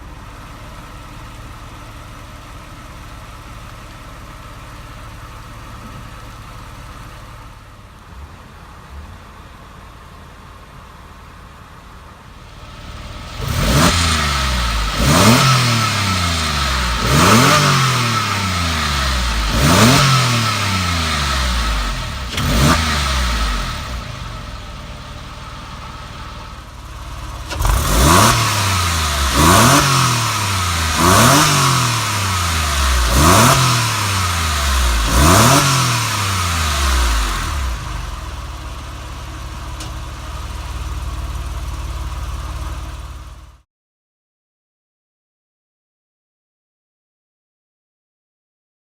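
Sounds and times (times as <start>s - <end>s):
car engine idling: 0.0s - 43.6s
car engine revving: 12.4s - 43.4s.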